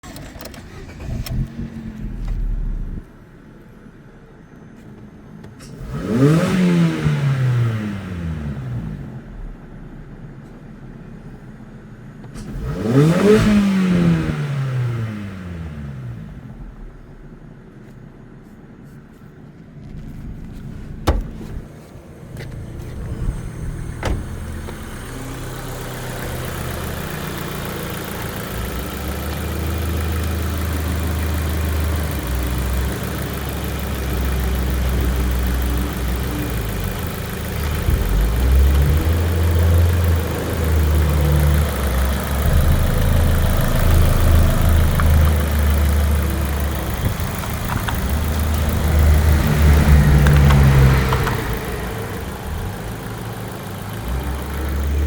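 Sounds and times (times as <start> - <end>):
car engine idling: 0.0 - 55.0
sharp clicks: 43.9 - 51.7.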